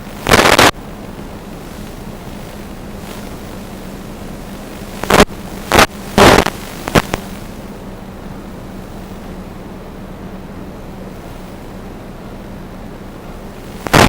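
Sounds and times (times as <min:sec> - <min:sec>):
loud bursts of noise: 0:00.0 - 0:07.8, 0:13.6 - 0:14.0.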